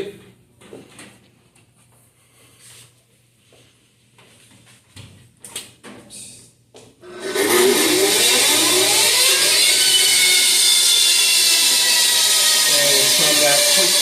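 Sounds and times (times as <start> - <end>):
bandsaw motor whine: 7.0 - 14.0.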